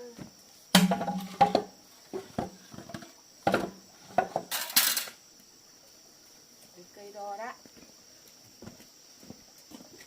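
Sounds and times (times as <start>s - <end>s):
dishes knocking and clinking: 0.8s - 1.7s.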